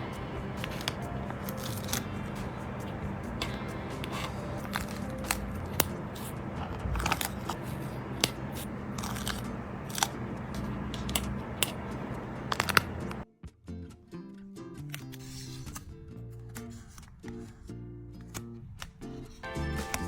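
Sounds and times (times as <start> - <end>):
sharp clicks: 0.0 - 13.2
sticker sheets crinkling: 0.0 - 13.2.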